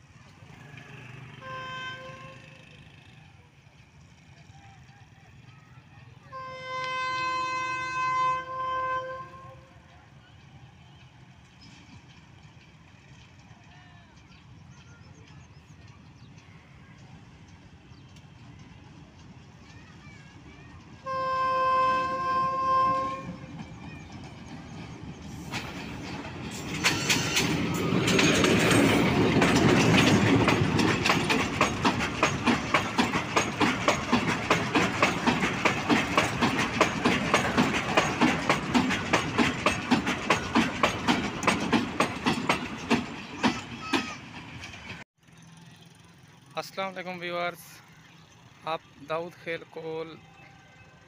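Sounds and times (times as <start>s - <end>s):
locomotive horn: 1.1s - 3.2s, 6.3s - 9.8s, 21.0s - 23.6s
wheels clicking over rail joints: 10.9s - 50.5s.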